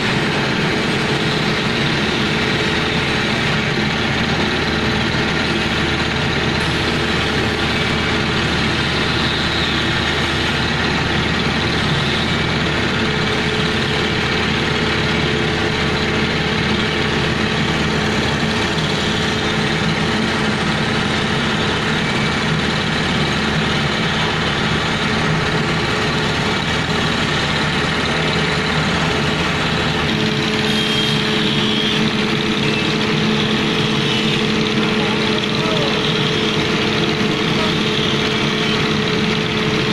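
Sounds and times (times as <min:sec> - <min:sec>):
heavy engine running: 0:00.0 - 0:39.9.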